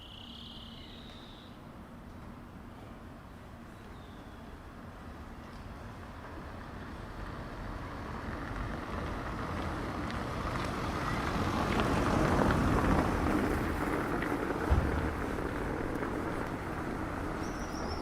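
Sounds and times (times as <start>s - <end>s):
tyre noise on road: 4.8s - 18.0s
car engine approaching: 6.6s - 18.0s.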